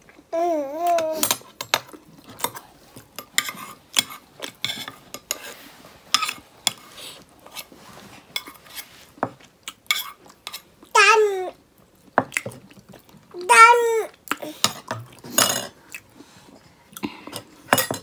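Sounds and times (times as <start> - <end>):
utensils clinking on a plate: 0.9 - 6.9, 8.3 - 10.7, 14.6 - 15.8, 17.3 - 18.0.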